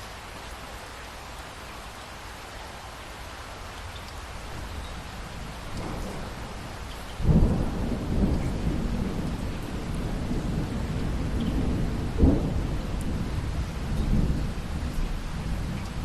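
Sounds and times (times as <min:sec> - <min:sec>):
steady rain: 0:00.0 - 0:16.0
thunder rumbling: 0:04.5 - 0:16.0.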